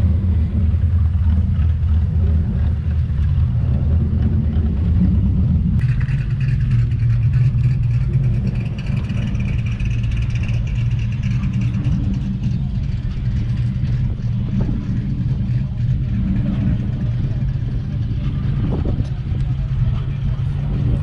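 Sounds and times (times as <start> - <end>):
car engine exhaust rumble: 0.0 - 21.0.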